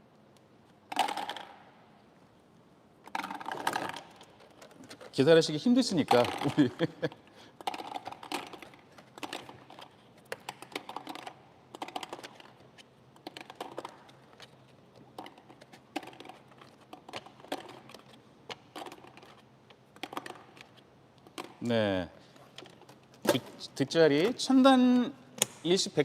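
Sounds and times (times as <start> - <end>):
plastic balls clicking and clattering: 0.9 - 1.8, 3.0 - 21.8.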